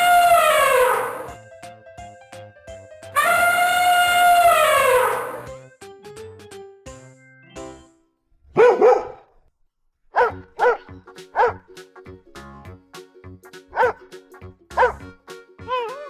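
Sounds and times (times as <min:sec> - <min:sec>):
background music: 0:00.0 - 0:08.1, 0:10.2 - 0:16.0
dog barking: 0:08.6 - 0:09.3, 0:10.1 - 0:11.6, 0:13.8 - 0:14.0, 0:14.8 - 0:15.0.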